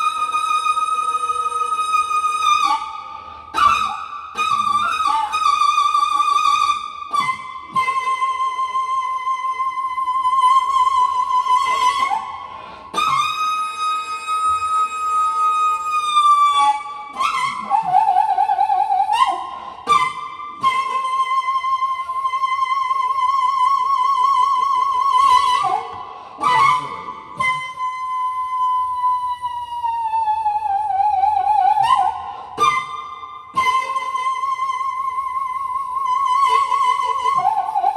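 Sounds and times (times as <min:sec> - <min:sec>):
bamboo flute melody: 0:00.0 - 0:37.9.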